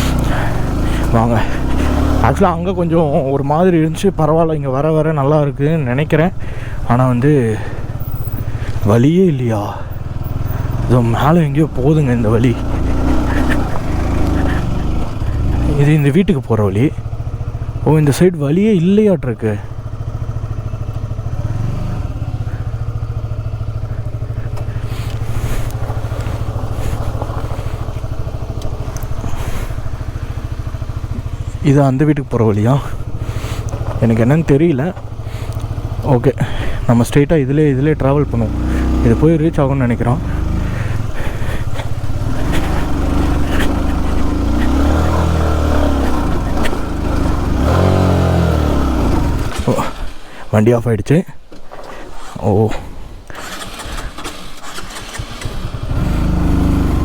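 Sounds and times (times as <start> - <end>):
motorcycle engine idling: 0.0 - 50.4, 53.0 - 57.0
wheels knocking over rocks: 24.2 - 30.0, 33.0 - 34.2.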